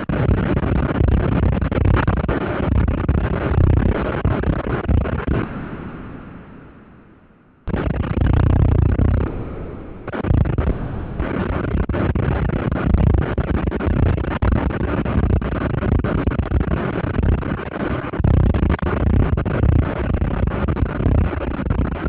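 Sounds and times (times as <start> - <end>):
thunder rumbling: 3.7 - 14.2.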